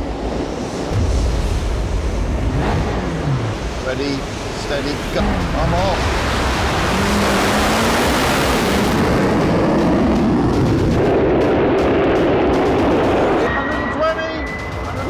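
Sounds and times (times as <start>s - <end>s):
vehicle engine accelerating: 2.0s - 13.5s.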